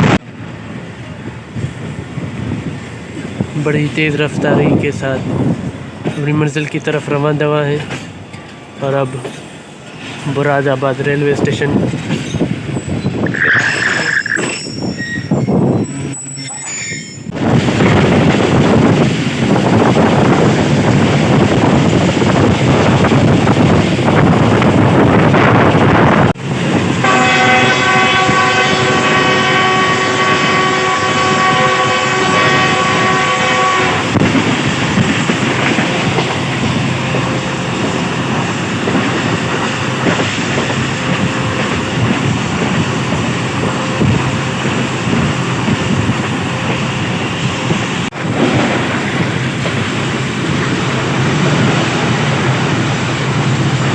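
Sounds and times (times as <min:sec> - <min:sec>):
train running at speed: 0:00.0 - 0:53.9
locomotive horn blast: 0:27.0 - 0:34.2.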